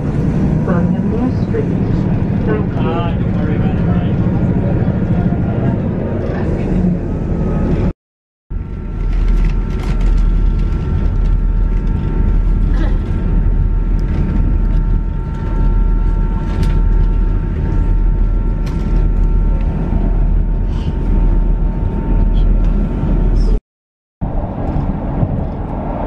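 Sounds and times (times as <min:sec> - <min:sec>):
train wheels rumbling on rails: 0:00.0 - 0:07.9, 0:08.6 - 0:23.6
high whine: 0:08.5 - 0:23.6.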